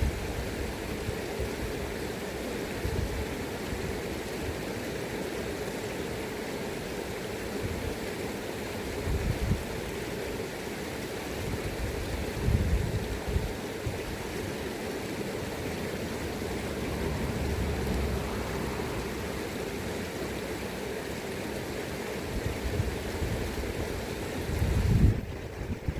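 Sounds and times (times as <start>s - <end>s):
river water rushing: 0.0s - 25.9s
wind buffeting microphone: 11.5s - 14.2s, 24.4s - 25.9s.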